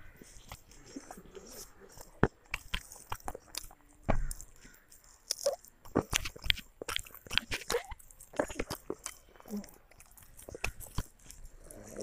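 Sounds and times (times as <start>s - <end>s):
child chewing food: 0.0s - 12.0s.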